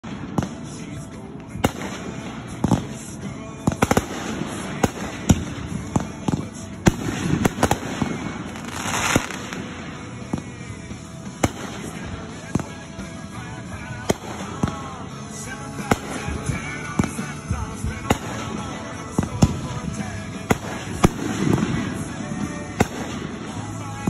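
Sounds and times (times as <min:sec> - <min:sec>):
fireworks bangs and crackles: 0:00.0 - 0:24.0
firework hiss: 0:07.0 - 0:10.0.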